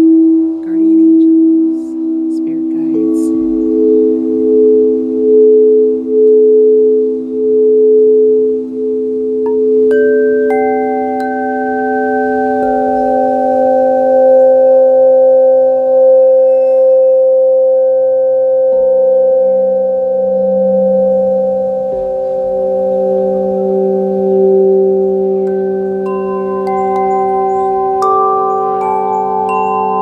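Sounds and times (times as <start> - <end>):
singing bowls ringing: 0.0 - 30.0.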